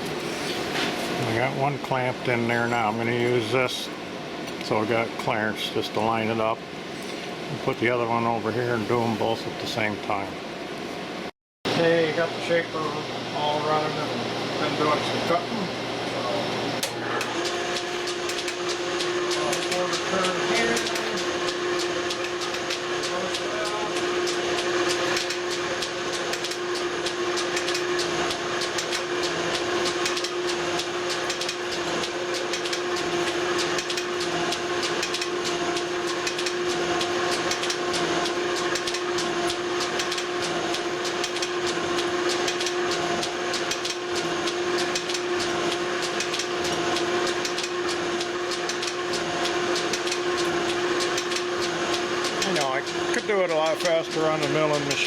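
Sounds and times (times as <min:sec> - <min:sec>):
metal shaper machine hum: 0:13.0 - 0:55.0.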